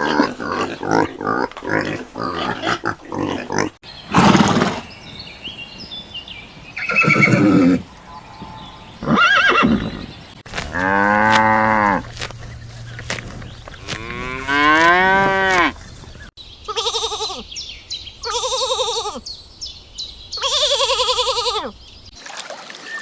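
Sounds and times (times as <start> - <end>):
farm animal calls: 0.0 - 4.9, 6.7 - 12.1, 16.6 - 19.3, 20.3 - 21.8.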